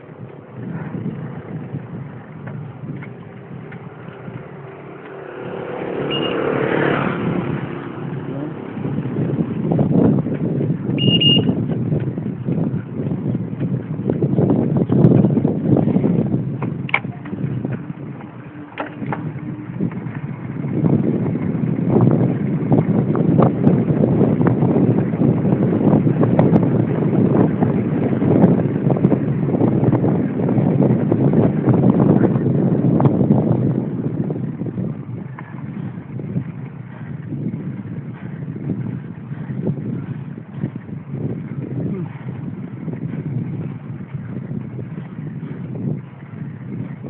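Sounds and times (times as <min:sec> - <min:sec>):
road and wind noise: 0:00.0 - 0:47.0
bike clicks and rattles: 0:02.4 - 0:05.2, 0:11.6 - 0:15.5, 0:16.5 - 0:20.3
motor vehicle passing by: 0:03.2 - 0:09.7.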